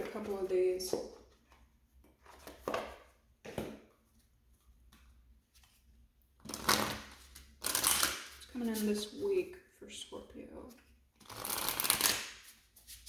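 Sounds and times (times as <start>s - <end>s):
cards rustling and slapping: 11.2s - 13.0s.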